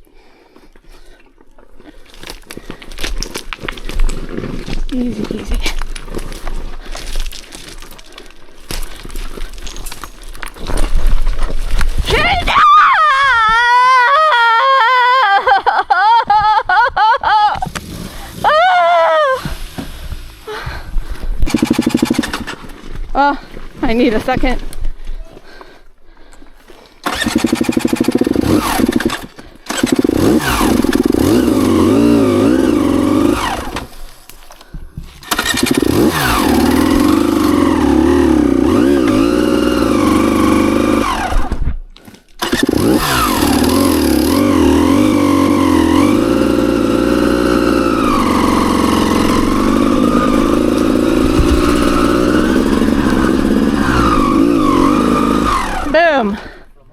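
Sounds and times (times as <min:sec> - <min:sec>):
dirt bike engine revving: 0:17.6 - 0:18.6, 0:21.4 - 0:22.7, 0:27.0 - 0:34.0, 0:35.2 - 0:41.6, 0:42.4 - 0:56.4.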